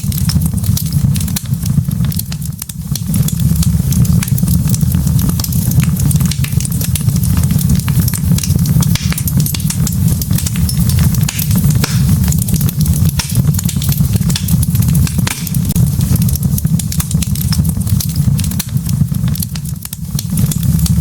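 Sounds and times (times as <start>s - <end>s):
fire crackles and pops: 0.0s - 21.0s
wood fire low rumble: 0.0s - 21.0s.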